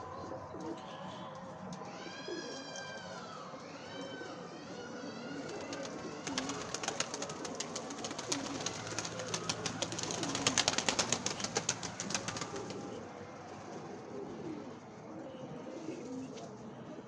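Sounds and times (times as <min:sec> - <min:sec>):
pigeons cooing: 0:04.0 - 0:17.0.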